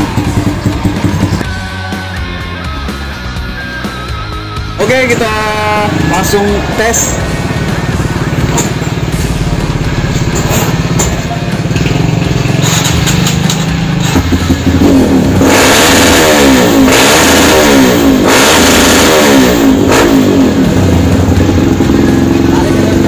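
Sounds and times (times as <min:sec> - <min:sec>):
dirt bike engine idling: 0:00.0 - 0:01.4, 0:04.8 - 0:15.4, 0:19.7 - 0:23.0.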